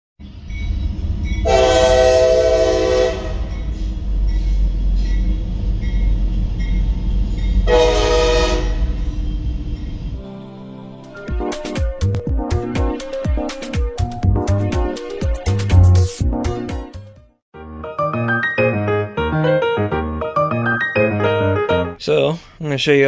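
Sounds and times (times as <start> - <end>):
train rumbling: 0.2 - 10.3
train horn blasts: 1.4 - 3.6, 7.6 - 9.1.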